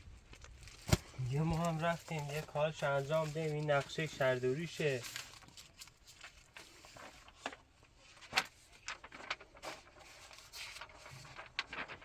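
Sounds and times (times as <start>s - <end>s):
paper rustling and tapping: 0.3s - 12.0s.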